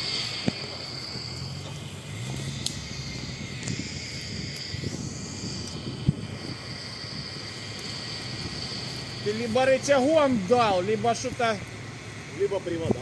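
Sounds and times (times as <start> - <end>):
high-pitched chirr: 0.0 - 11.1
vehicle engine idling: 0.0 - 13.0
sharp clicks: 1.4 - 3.0.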